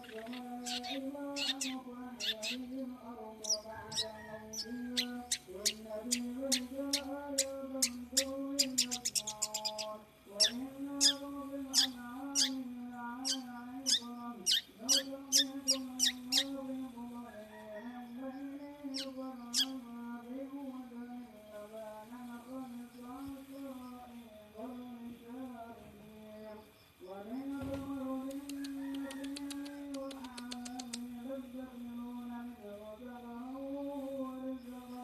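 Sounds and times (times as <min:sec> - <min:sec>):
bird giving sharp high chirps: 0:00.0 - 0:02.6, 0:07.8 - 0:11.2, 0:13.3 - 0:16.5
person chanting: 0:00.0 - 0:35.0.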